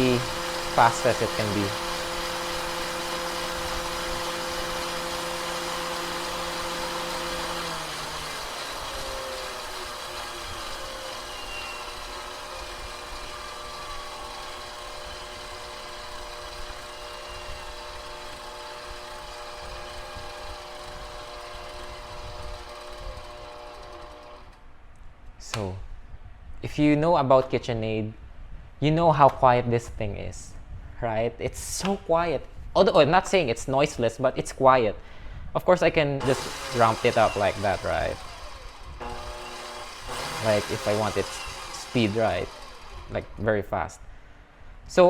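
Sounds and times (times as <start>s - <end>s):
stand mixer motor whining: 0.0s - 24.6s, 36.2s - 43.5s.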